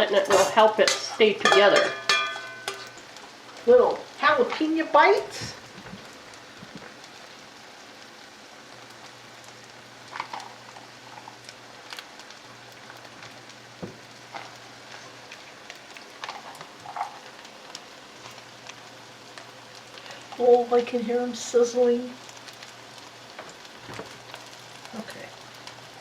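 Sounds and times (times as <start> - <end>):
batter sizzling in oil: 0.0 - 26.0
oil popping: 12.8 - 18.8.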